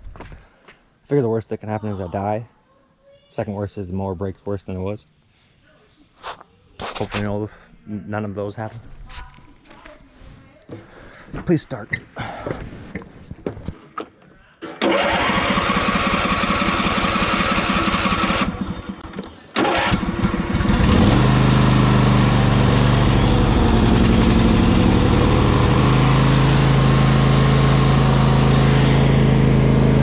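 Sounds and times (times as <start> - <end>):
starter motor cranking: 14.8 - 19.0, 19.6 - 21.2
lawn mower engine running: 14.8 - 30.0.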